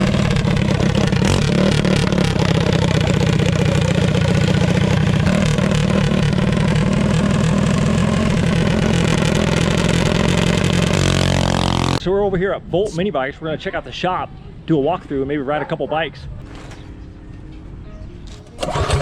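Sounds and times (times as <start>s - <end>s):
minibike engine running: 0.0s - 12.0s, 18.4s - 19.0s.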